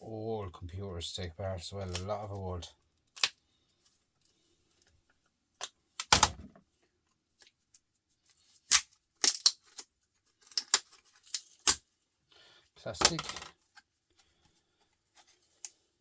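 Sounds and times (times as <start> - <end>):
plastic casing clicks and snaps: 5.6 - 6.4, 8.7 - 9.9.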